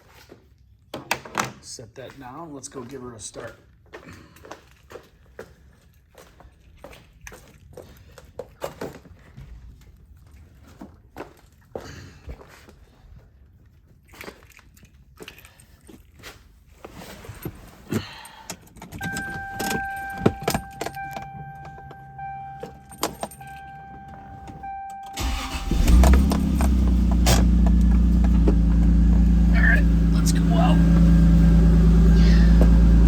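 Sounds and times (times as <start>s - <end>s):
car engine starting and idling: 18.5s - 33.0s
keys jangling: 18.7s - 24.6s, 25.8s - 27.4s
steady electronic tone: 19.0s - 25.2s.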